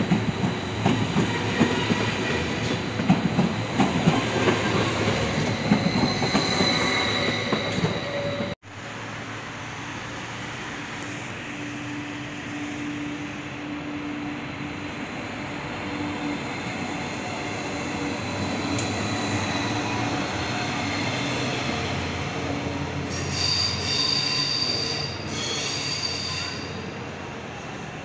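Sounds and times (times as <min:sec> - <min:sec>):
train wheels squealing: 0:00.0 - 0:08.6, 0:16.0 - 0:22.1, 0:23.0 - 0:27.0
train running past: 0:00.0 - 0:28.0.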